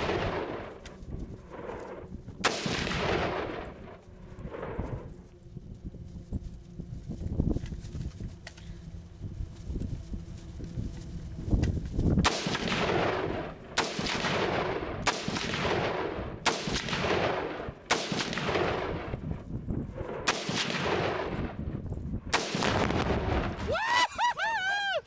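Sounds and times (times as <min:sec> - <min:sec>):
rifle shots with rolling echo: 0:00.0 - 0:05.2, 0:12.2 - 0:23.7.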